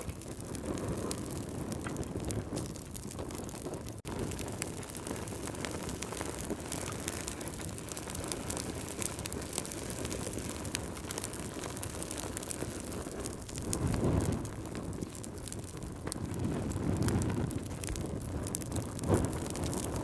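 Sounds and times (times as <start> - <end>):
fire crackling and popping: 0.0 - 20.0
fire rumbling: 0.0 - 20.0.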